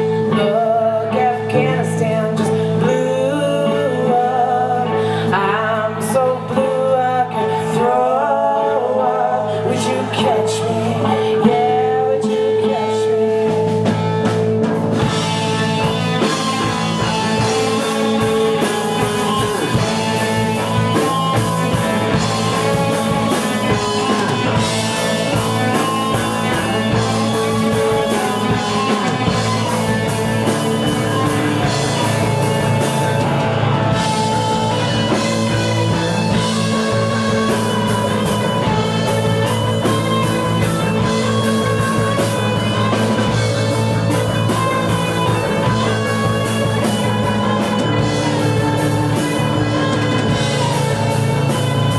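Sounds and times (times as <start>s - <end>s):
live rock band playing: 0.0s - 51.9s
drum kit beat: 13.5s - 51.9s.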